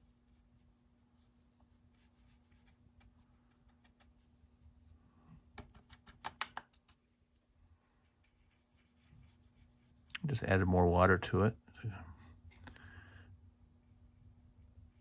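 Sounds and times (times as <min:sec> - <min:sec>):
brush scratching on paper: 0:01.2 - 0:06.1, 0:08.0 - 0:10.1.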